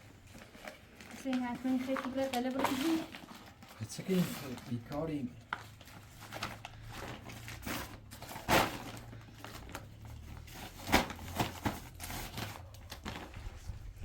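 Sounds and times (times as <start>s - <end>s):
rustling and handling noises: 0.0s - 14.0s.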